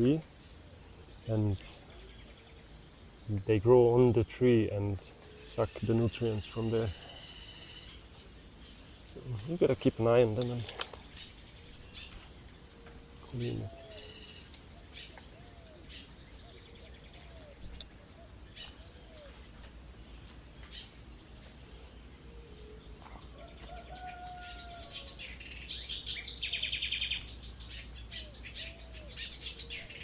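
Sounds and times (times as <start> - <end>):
birds calling: 0.0 - 30.0
high-pitched insect drone: 0.0 - 30.0.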